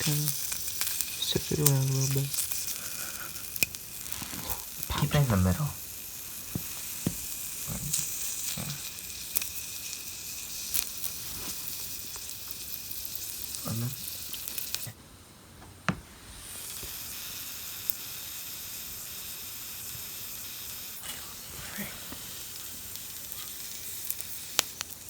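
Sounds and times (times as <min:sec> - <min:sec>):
mushrooms sizzling in a hot pan: 0:00.0 - 0:15.0, 0:16.0 - 0:25.0.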